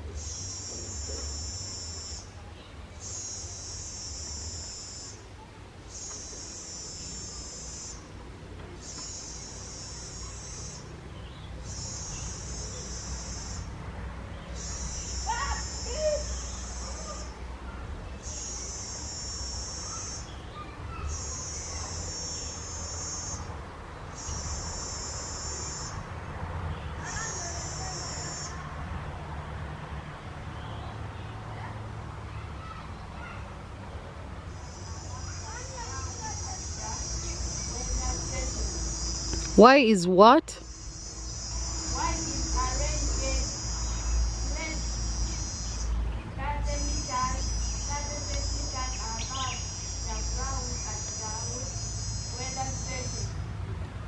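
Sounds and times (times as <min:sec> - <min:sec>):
insect trilling: 0:05.9 - 0:08.1, 0:14.6 - 0:17.4, 0:18.2 - 0:20.4, 0:21.1 - 0:23.5, 0:24.2 - 0:26.0, 0:27.0 - 0:28.6, 0:40.6 - 0:46.0, 0:46.7 - 0:53.4.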